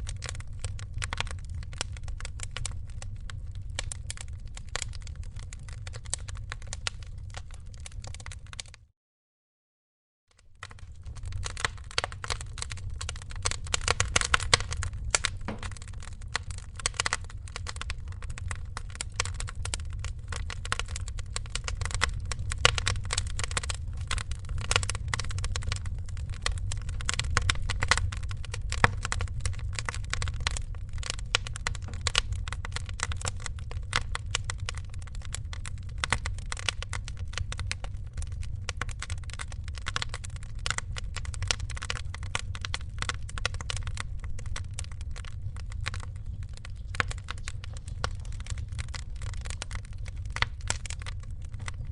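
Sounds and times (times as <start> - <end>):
wood fire crackling and popping: 0.0 - 8.8, 10.4 - 51.9
steady low rumble: 10.6 - 51.9.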